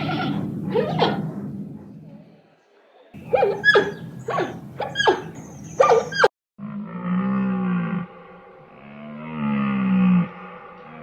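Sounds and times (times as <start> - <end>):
long low animal call: 3.2 - 11.0.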